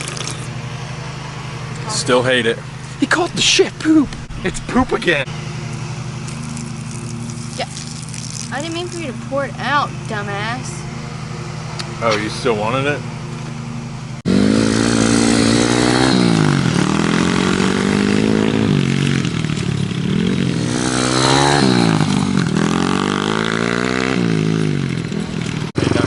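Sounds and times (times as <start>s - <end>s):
pit bike engine revving: 0.0s - 26.0s.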